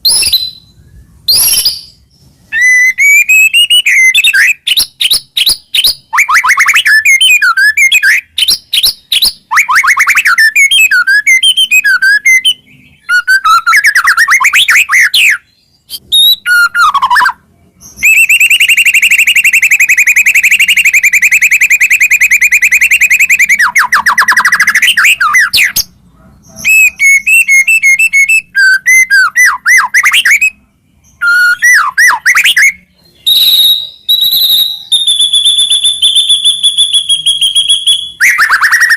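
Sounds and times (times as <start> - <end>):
bird singing whistled phrases: 0.0 - 25.9, 26.5 - 38.9
bird rattling trill: 34.1 - 38.9.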